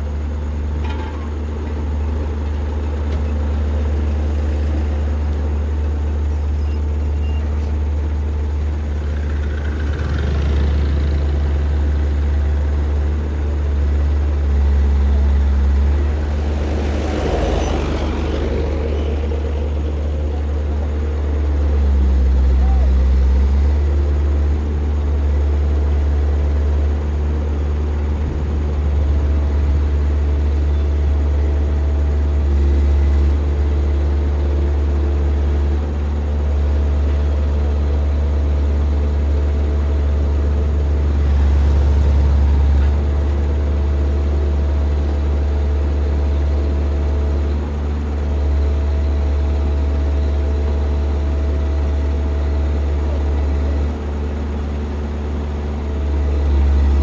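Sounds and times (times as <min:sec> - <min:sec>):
heavy diesel engine droning: 0:00.0 - 0:57.0.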